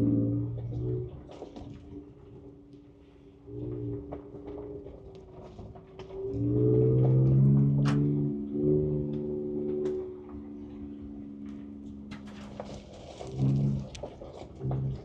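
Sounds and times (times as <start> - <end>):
truck engine under throttle: 0.0 - 15.0
truck knocks and rattles: 3.6 - 15.0.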